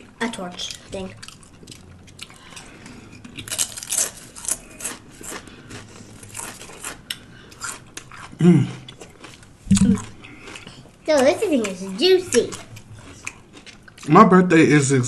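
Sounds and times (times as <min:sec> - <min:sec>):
crisp bites and chewing: 0:01.2 - 0:10.7
person humming: 0:09.7 - 0:10.0.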